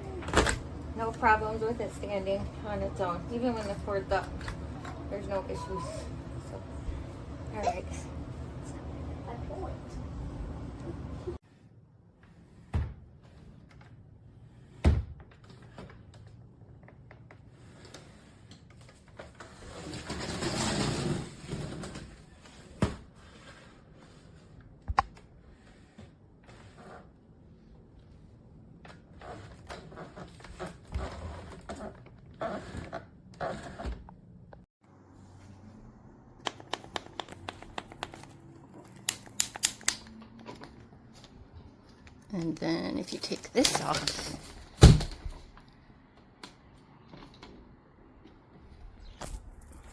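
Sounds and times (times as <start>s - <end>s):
vacuum cleaner thumps: 44.8s - 45.4s.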